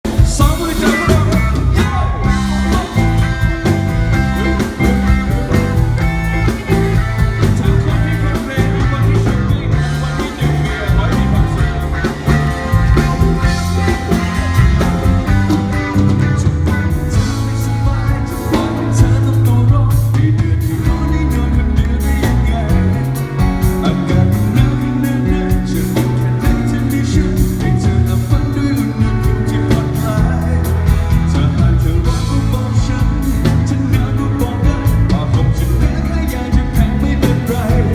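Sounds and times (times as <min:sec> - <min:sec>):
heavy bass: 0:00.0 - 0:37.9
live rock band playing: 0:00.0 - 0:37.9
steady drum beat: 0:00.0 - 0:37.9
person singing: 0:00.1 - 0:37.9.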